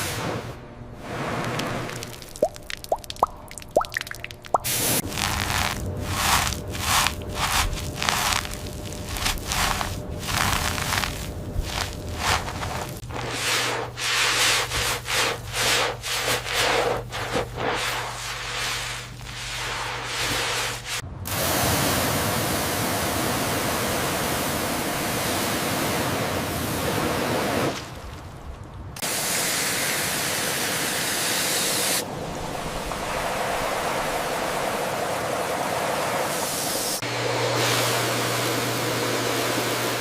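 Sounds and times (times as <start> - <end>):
scrubbing strokes: 1.0 - 21.0
water jet spraying on metal: 4.6 - 27.8.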